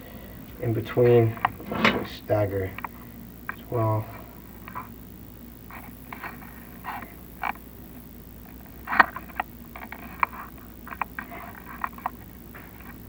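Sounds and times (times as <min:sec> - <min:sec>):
camera scraping inside chimney: 0:00.2 - 0:02.9, 0:08.6 - 0:13.0.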